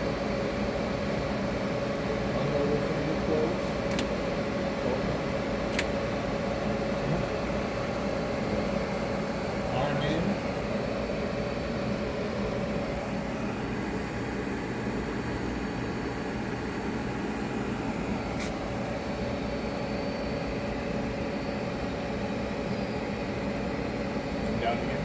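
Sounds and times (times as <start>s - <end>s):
lathe machine humming: 1.7s - 25.0s
sharp click: 3.9s - 4.1s, 5.7s - 5.9s.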